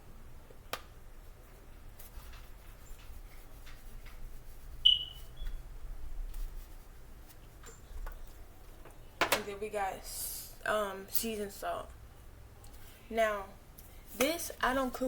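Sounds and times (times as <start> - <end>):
short high squeak: 4.8 - 5.6.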